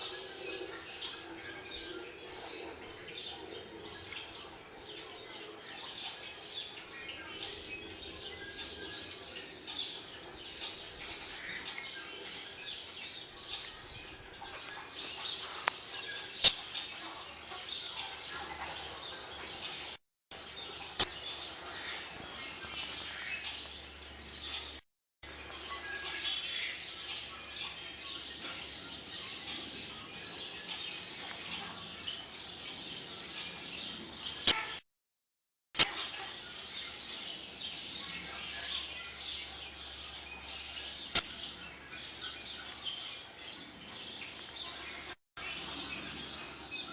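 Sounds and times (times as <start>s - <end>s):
small birds chirping: 0.0s - 34.8s, 35.8s - 46.9s
sharp click: 41.1s - 41.4s.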